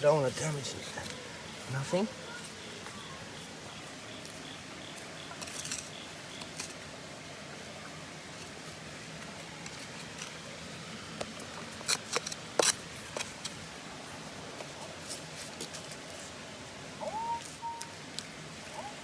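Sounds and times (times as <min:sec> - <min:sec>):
metal detector beeping: 0:17.1 - 0:18.0.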